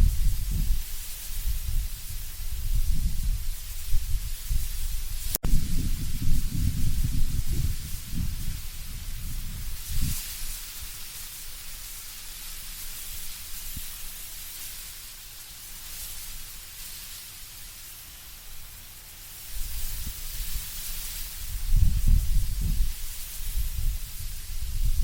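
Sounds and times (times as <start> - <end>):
leaves rustling in wind: 0.0 - 25.0
low gust rumble: 1.4 - 10.1, 21.5 - 25.0.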